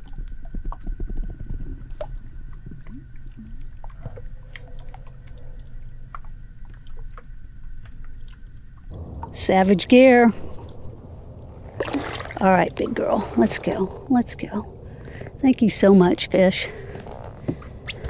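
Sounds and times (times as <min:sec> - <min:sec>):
muffled water rumble: 0:00.0 - 0:18.0
faint steady whine: 0:08.9 - 0:18.0.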